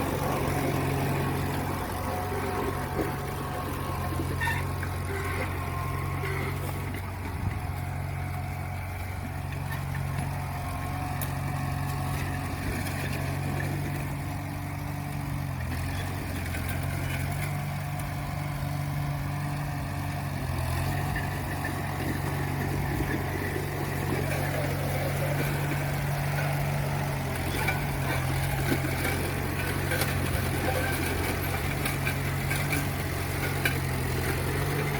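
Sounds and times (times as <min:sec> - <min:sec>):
tractor engine running: 0:00.0 - 0:34.9.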